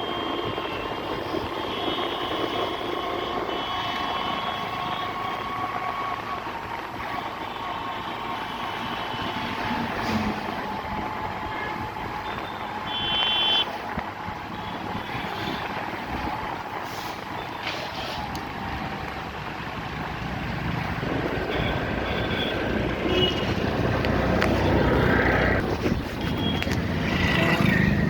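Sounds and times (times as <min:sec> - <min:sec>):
road traffic noise: 0:00.0 - 0:28.0.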